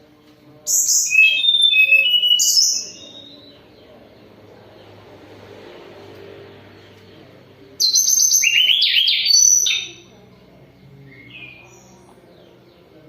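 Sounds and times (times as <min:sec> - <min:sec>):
songbird whistling phrase: 0:00.7 - 0:03.5, 0:07.8 - 0:10.1.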